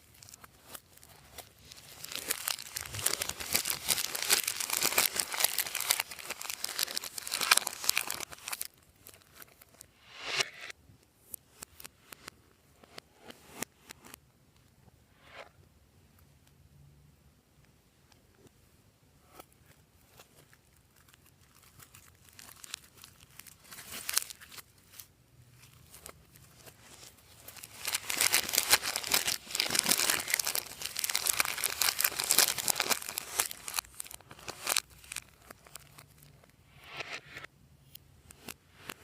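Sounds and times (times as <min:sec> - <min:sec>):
slime and plastic bags crackling: 0:00.0 - 0:09.9, 0:20.0 - 0:36.6.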